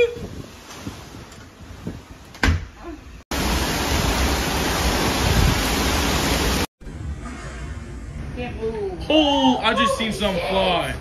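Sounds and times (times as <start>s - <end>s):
heavy rain and wind: 0.0s - 6.7s
thump: 2.4s - 2.7s.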